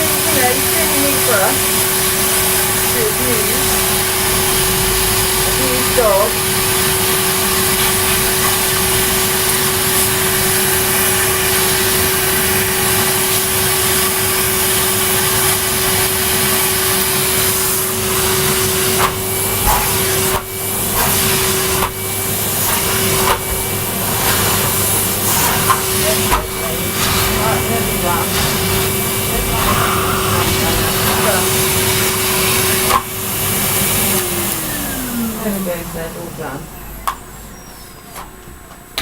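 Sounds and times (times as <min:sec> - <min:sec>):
vacuum cleaner humming: 0:00.0 - 0:39.0.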